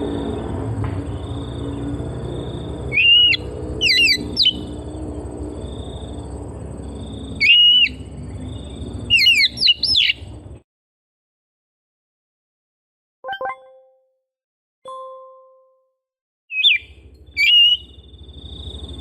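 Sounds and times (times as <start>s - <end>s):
magpie-robin singing whistled phrases: 2.9s - 4.7s, 7.4s - 8.1s, 9.1s - 10.2s, 16.5s - 18.0s.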